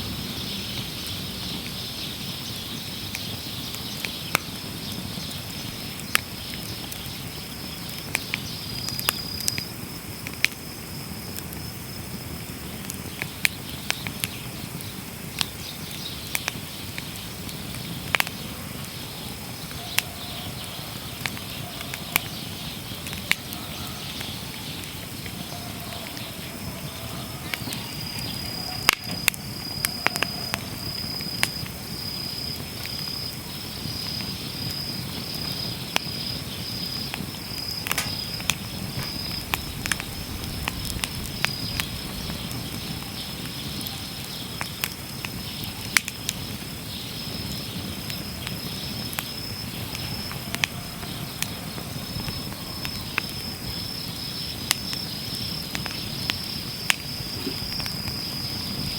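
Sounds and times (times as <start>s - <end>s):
campfire crackling and popping: 0.0s - 58.9s
high thin insect trill: 36.5s - 42.0s.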